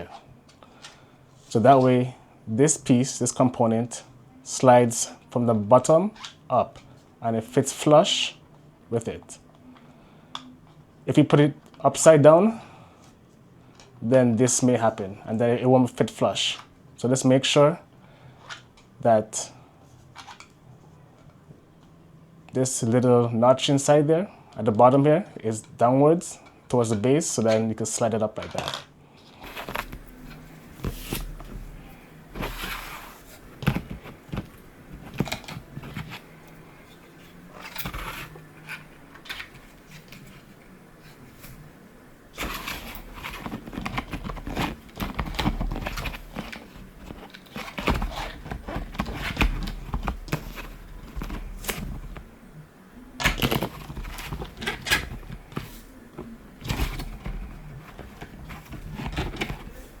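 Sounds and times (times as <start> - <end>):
plastic parts clicking and knocking: 28.4 - 32.6, 33.4 - 36.6, 37.5 - 40.5, 42.4 - 52.4, 53.2 - 60.0.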